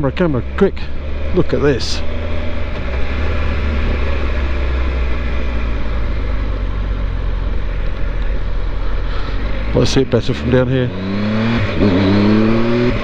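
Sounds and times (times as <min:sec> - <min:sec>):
motorcycle engine drone: 0:00.0 - 0:13.0.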